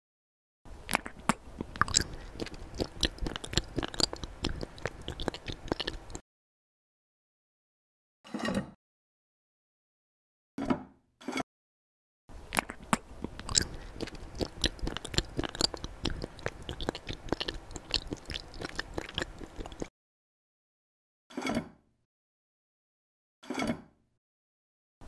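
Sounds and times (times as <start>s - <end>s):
crunchy chewing: 0.8s - 6.2s, 12.5s - 19.9s.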